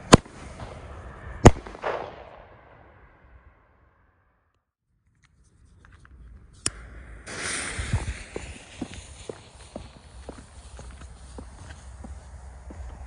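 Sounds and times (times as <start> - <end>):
jet lighter flame hissing: 6.6 - 10.8.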